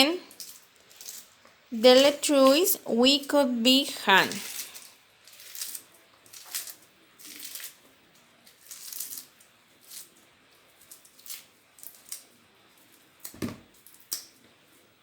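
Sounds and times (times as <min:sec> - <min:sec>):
lettuce leaves tearing: 0:04.2 - 0:07.8, 0:08.4 - 0:14.3.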